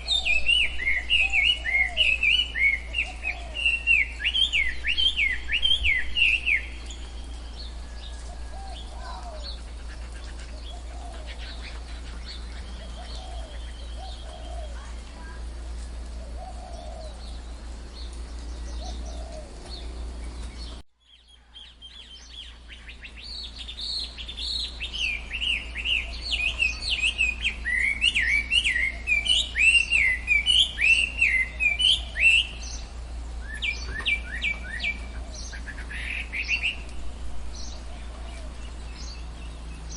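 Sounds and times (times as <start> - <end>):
birds chirping: 0.0 - 39.9
soft low bird calls: 0.0 - 39.9
steady low hum: 0.0 - 39.9.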